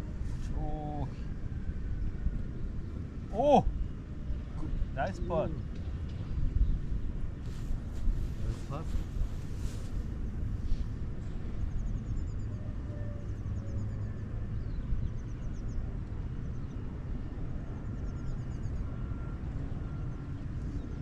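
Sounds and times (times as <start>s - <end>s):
steady low rumble: 0.0s - 12.6s.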